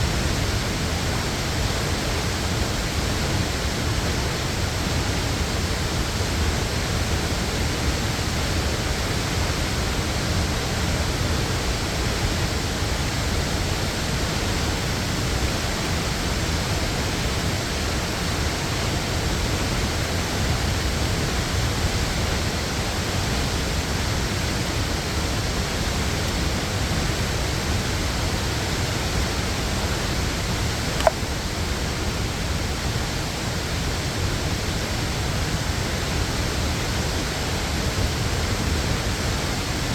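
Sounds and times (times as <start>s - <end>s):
brief click: 31.0s - 31.2s.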